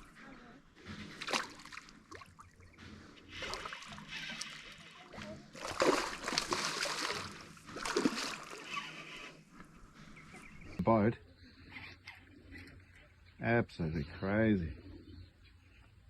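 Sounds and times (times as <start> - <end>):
water splashing: 1.0 - 2.6, 3.3 - 9.3.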